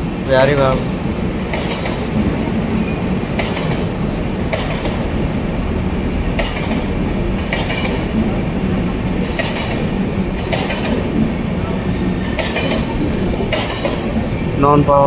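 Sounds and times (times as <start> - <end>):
train rumbling on rails: 0.0 - 15.0
wheels clacking over rail joints: 0.0 - 15.0.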